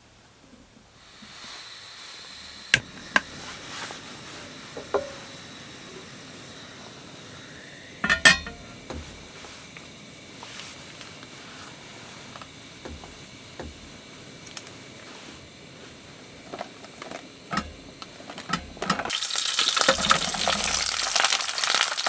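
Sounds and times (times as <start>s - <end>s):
steady hiss: 0.0s - 22.0s
dishes and utensils clinking: 8.0s - 8.8s, 18.4s - 19.1s.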